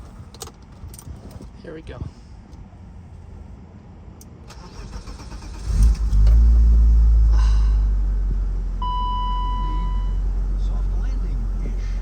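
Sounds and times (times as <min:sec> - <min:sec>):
engine starter cranking: 0:04.5 - 0:06.4
car engine idling: 0:04.5 - 0:12.0.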